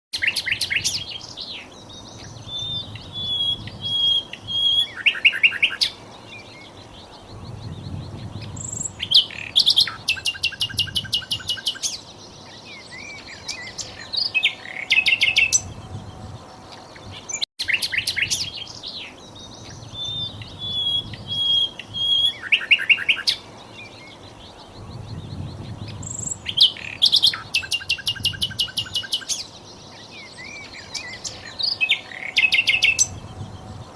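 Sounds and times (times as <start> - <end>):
clear whistled bird notes: 0.2 - 33.9
flycatcher chattering song: 6.8 - 33.9.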